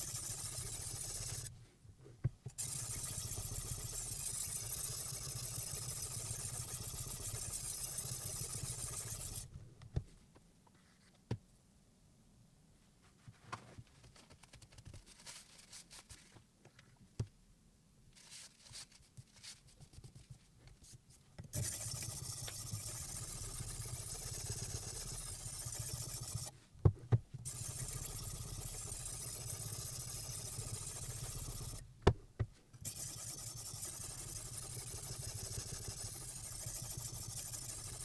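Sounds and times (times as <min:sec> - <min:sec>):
small electric appliance whirring: 0:21.6 - 0:26.5.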